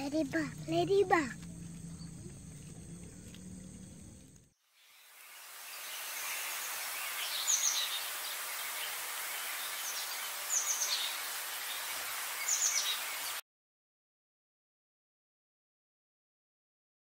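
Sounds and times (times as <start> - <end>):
steady high-pitched hiss: 0.1 - 13.4
downward-sweeping bird calls: 5.6 - 13.4.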